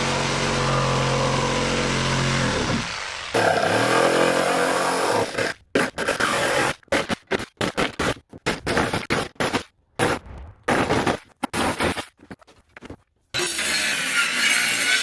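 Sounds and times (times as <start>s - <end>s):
power saw cutting plywood: 0.0s - 7.1s, 13.4s - 15.0s
scraping and cutting noises: 2.0s - 15.0s.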